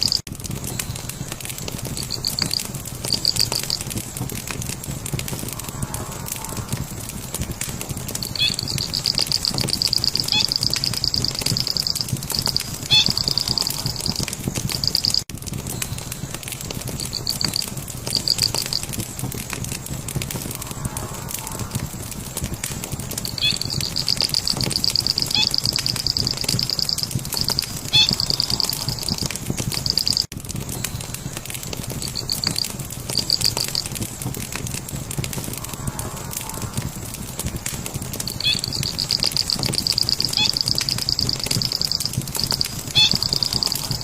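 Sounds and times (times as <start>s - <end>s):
wood fire crackling: 0.0s - 44.0s
bird singing high trill: 8.4s - 15.2s, 23.3s - 30.3s, 38.4s - 44.0s.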